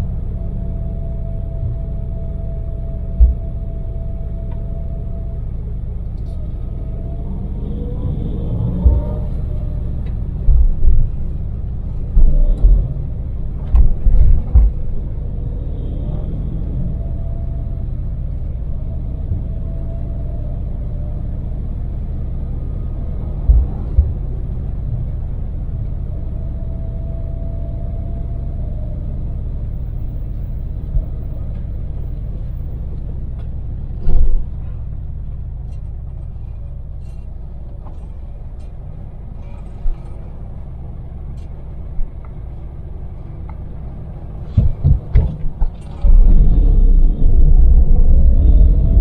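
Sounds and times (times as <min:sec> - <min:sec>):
van engine and tyres rumbling: 0:00.0 - 0:49.0
short low thumps: 0:03.1 - 0:03.8, 0:08.7 - 0:15.3, 0:23.1 - 0:24.6.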